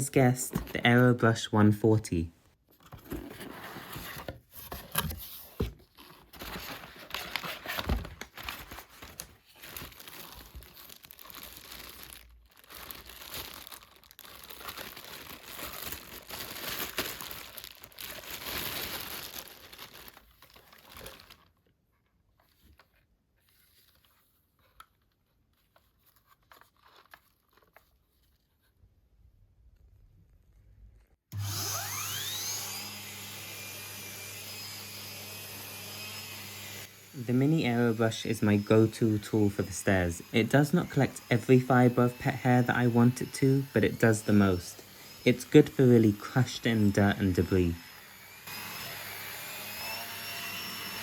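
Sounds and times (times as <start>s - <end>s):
packaging crinkling: 5.8s - 21.7s, 22.4s - 28.5s.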